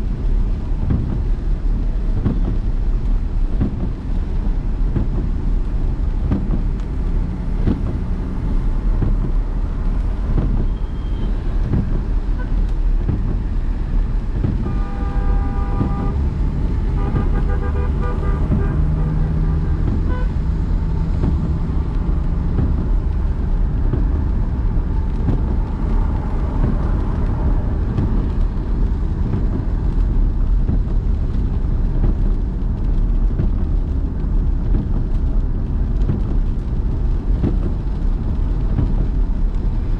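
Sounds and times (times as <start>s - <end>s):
car driving through city traffic: 0.0s - 39.9s
vehicle horns honking: 14.6s - 16.2s, 16.9s - 20.4s.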